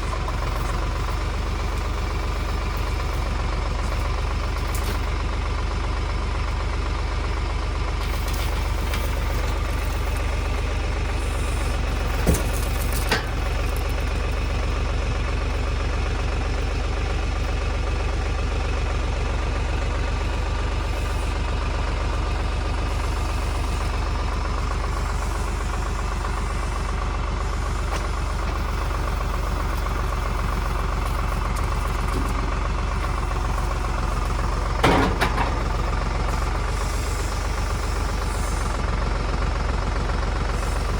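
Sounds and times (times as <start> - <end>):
tractor engine running: 0.0 - 40.9
sharp engine knocks: 8.0 - 14.6, 27.9 - 36.8.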